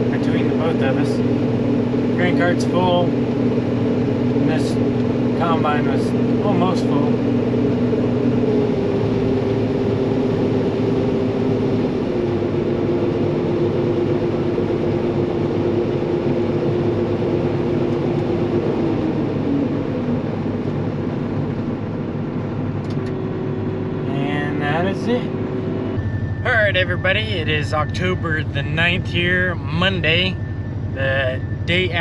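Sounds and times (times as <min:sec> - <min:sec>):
combine engine drone: 0:00.0 - 0:32.0.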